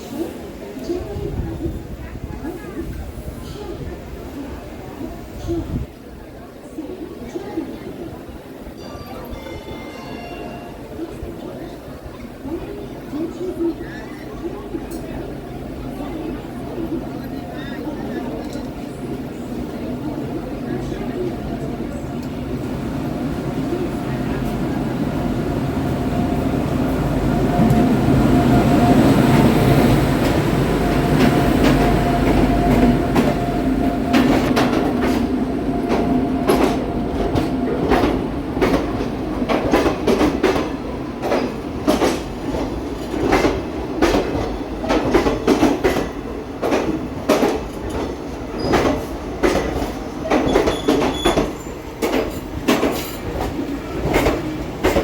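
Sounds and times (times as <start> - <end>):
train rumbling past: 0.0 - 55.0
locomotive whine: 21.9 - 38.5.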